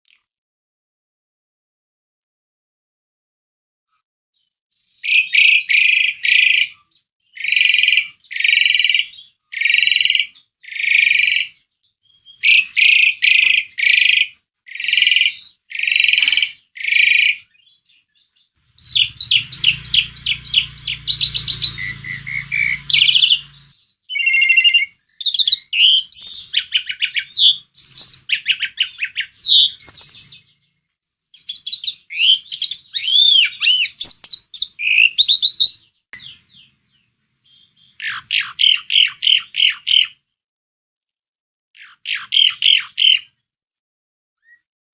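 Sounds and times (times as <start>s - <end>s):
low hum: 18.8s - 23.7s
starling calling and singing: 18.8s - 30.6s.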